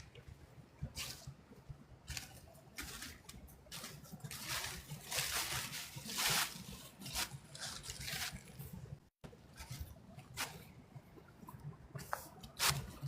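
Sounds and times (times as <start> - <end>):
footsteps crunching dry leaves: 2.1 - 8.6.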